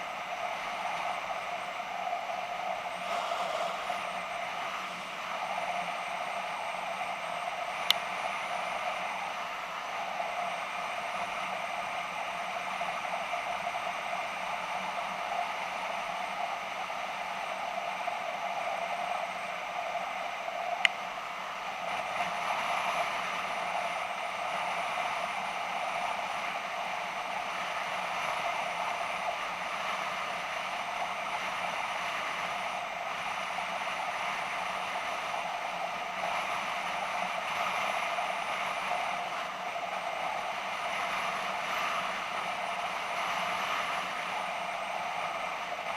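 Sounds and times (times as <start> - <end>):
rushing air: 0.0 - 13.6.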